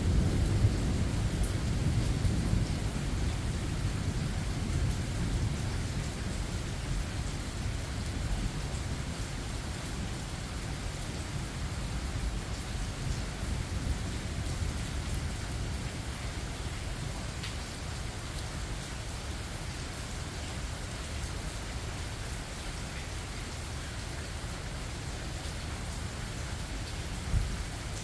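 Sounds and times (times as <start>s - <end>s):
low thunder rumble: 0.0s - 7.8s
steady rain falling: 0.0s - 28.0s.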